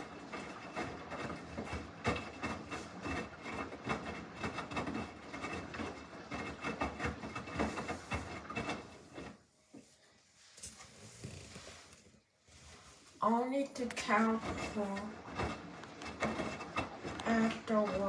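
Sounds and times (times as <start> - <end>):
knocks and rubbing: 0.0 - 9.4, 13.9 - 18.0
washing machine drum turning: 14.2 - 18.0.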